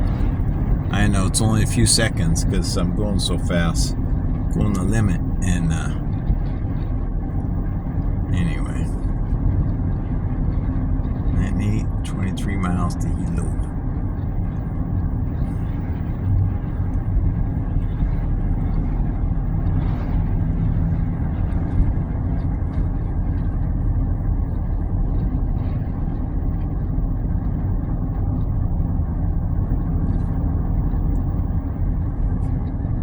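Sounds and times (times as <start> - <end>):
car road noise hum: 0.0 - 8.8.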